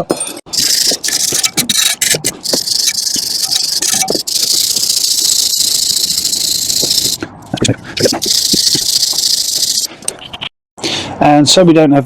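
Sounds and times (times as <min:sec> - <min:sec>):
scraping strokes on metal: 0:00.2 - 0:07.2.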